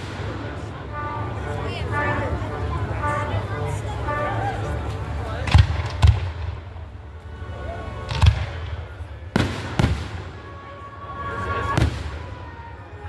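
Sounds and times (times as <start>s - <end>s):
fireworks bursting with deep bangs: 0.0s - 0.8s, 5.4s - 7.0s, 8.0s - 10.7s, 11.6s - 12.7s.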